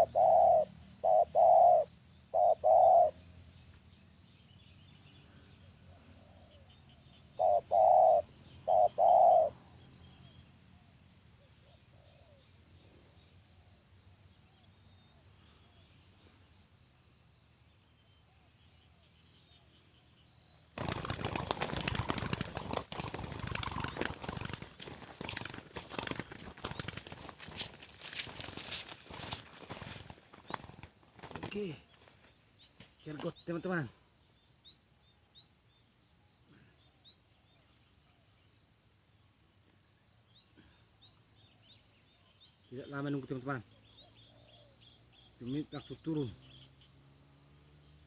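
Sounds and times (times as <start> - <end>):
dove cooing: 0.0 - 3.2, 7.3 - 9.6, 20.8 - 27.6
wings flapping and rustling: 20.7 - 33.0.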